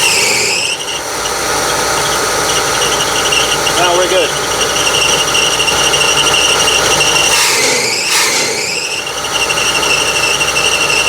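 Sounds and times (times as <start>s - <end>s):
engine running: 0.0s - 11.0s
high-pitched whistle: 4.6s - 11.0s.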